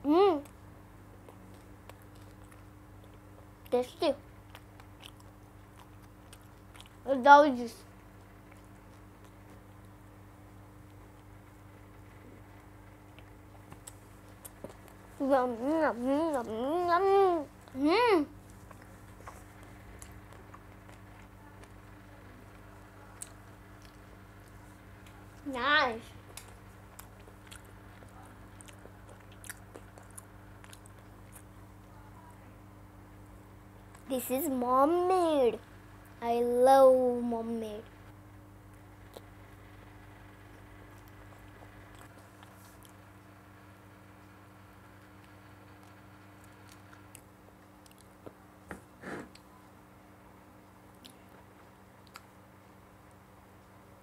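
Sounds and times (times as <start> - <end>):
low electrical hum: 0.0 - 54.0
child chewing bread: 0.3 - 7.1, 7.7 - 32.0, 38.6 - 49.6, 50.6 - 53.9
wet mouth clicks chewing: 4.5 - 7.0, 26.3 - 31.5, 45.2 - 48.4, 52.0 - 52.4.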